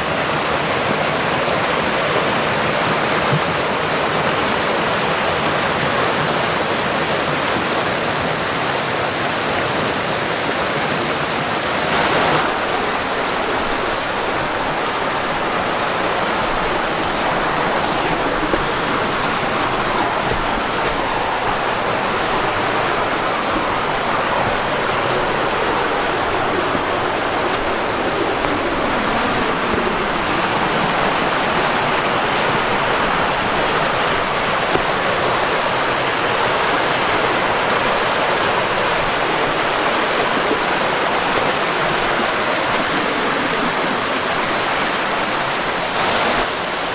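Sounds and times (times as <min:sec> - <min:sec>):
creek water rushing: 0:00.0 - 0:46.9.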